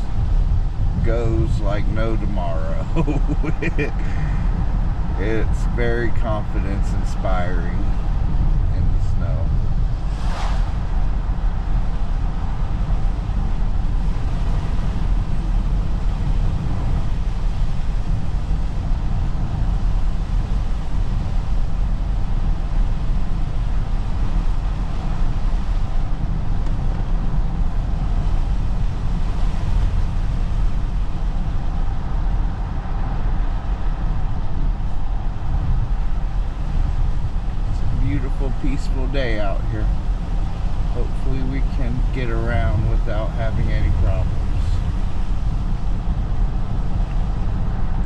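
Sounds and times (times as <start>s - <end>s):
road and tyre noise: 0.0s - 48.0s.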